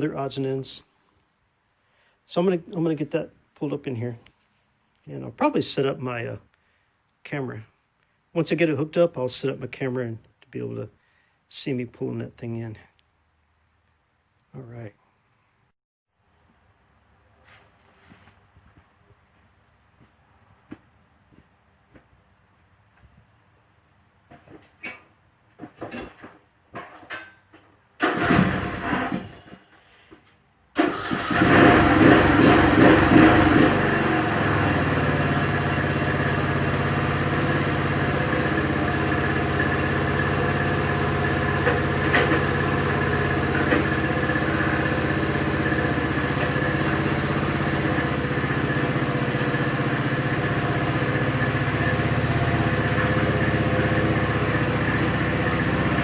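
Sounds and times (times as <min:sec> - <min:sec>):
riding lawn mower engine starting: 0:28.0 - 0:29.6, 0:30.8 - 0:56.0.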